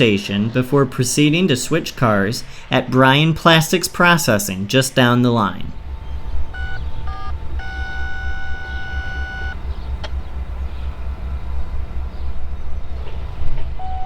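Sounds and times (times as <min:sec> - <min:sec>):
low train rumble: 0:00.0 - 0:14.0
train horn blast: 0:06.0 - 0:09.8.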